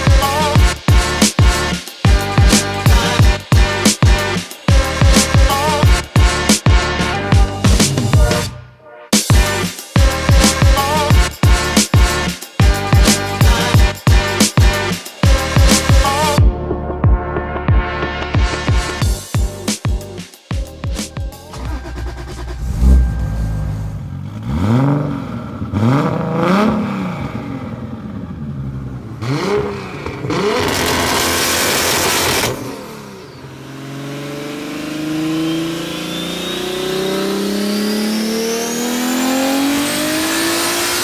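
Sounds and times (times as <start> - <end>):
loud rushing noise: 21.5 - 24.5
car engine revving: 21.5 - 41.0.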